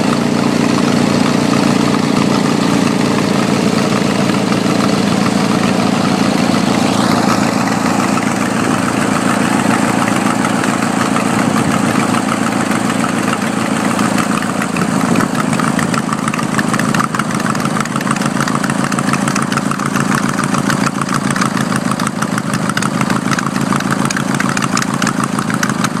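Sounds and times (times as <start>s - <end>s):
twin-cylinder engine running: 0.0s - 26.0s.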